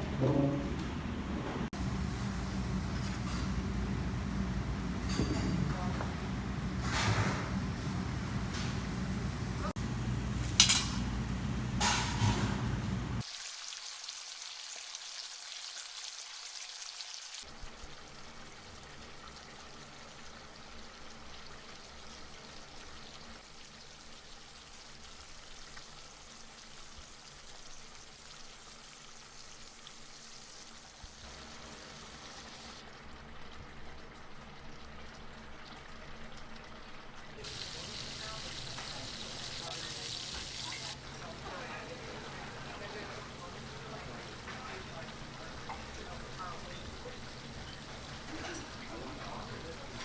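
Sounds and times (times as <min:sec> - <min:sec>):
broth simmering and bubbling: 0:17.4 - 0:50.0.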